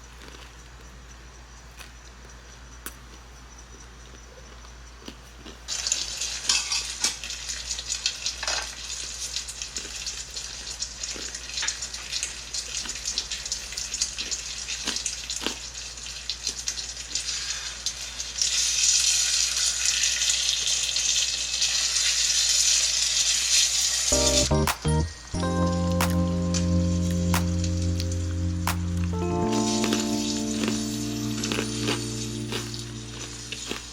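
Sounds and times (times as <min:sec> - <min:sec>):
food sizzling and crackling: 0:27.5 - 0:33.9.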